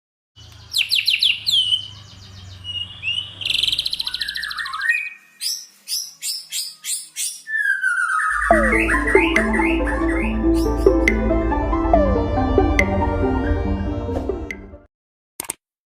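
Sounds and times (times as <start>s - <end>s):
small bird singing: 0.4s - 11.1s
high chirps and buzzy trill: 6.0s - 13.9s.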